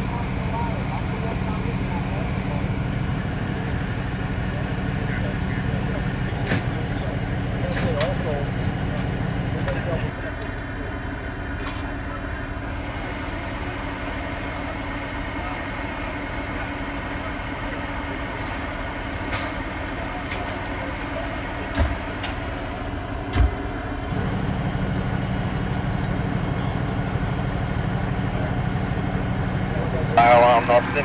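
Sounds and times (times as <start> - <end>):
vehicle engine humming: 0.0 - 16.4, 17.1 - 31.0.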